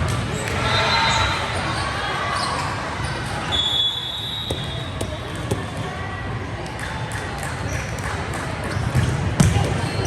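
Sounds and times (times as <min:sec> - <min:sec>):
murmur of the hall: 0:00.0 - 0:10.0
volleyball bouncing on gym floor: 0:04.4 - 0:05.9, 0:06.7 - 0:10.0.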